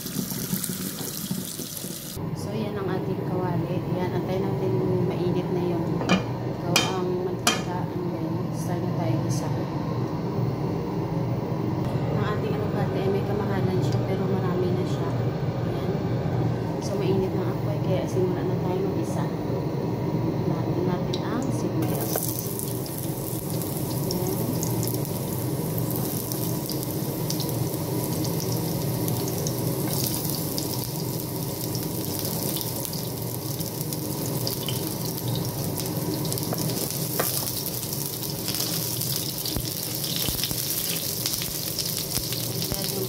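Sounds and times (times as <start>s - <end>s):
onion and garlic sizzling in oil: 0.0s - 2.2s, 21.0s - 43.0s.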